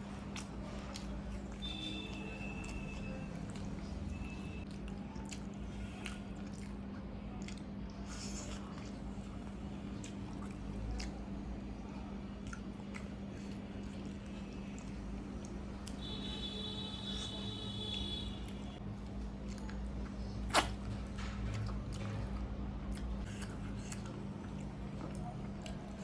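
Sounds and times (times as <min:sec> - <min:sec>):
person chewing food: 0:00.0 - 0:26.0
wet mouth clicks: 0:20.4 - 0:20.9.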